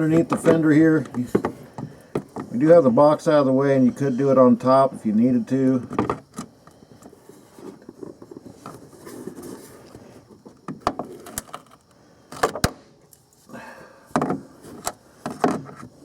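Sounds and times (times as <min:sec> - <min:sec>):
tool handling and rubbing: 0:05.8 - 0:11.8.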